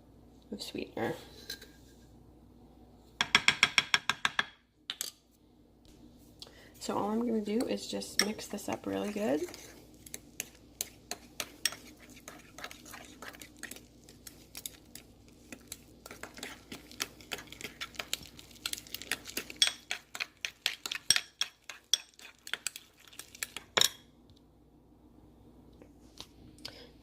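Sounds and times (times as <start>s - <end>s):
utensil stirring in glass bowl: 7.1s - 23.8s.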